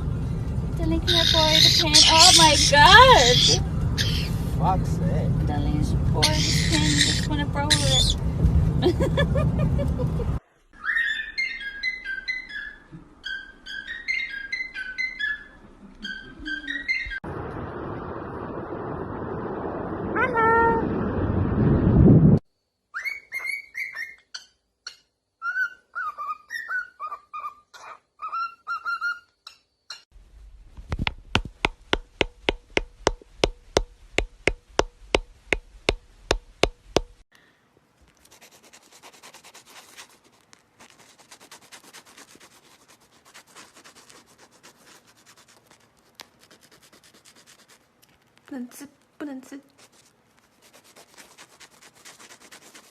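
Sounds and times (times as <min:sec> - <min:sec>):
parrot whistling: 0:01.1 - 0:04.4, 0:06.2 - 0:08.2, 0:10.8 - 0:17.2, 0:23.0 - 0:24.2
sharp even tapping: 0:30.8 - 0:37.2.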